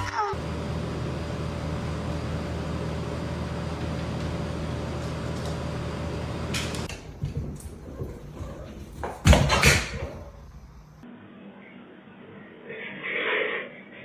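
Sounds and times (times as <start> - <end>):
steady mechanical hum: 0.1 - 11.1.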